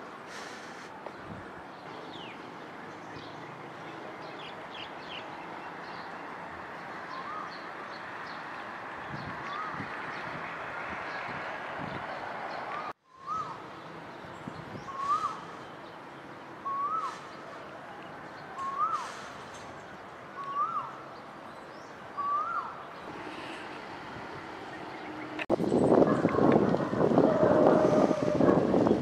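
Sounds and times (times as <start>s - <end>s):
steady background noise: 0.0s - 29.0s
bird whistled call: 13.1s - 13.6s, 14.8s - 15.6s, 16.6s - 17.4s, 18.6s - 19.1s, 20.4s - 21.0s, 22.2s - 22.8s.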